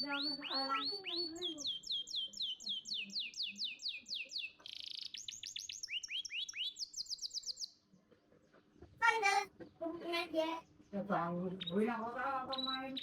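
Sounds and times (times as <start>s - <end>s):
canary singing trills: 0.0s - 7.8s, 10.6s - 13.0s.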